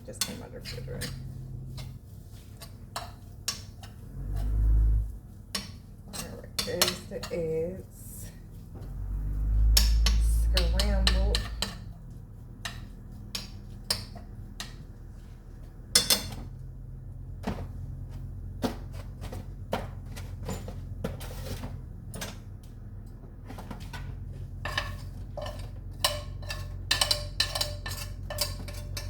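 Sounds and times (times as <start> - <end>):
steady low hum: 0.0 - 29.0
utensil clinking against cookware: 5.5 - 7.6, 9.7 - 12.0, 16.0 - 16.5, 24.6 - 29.0.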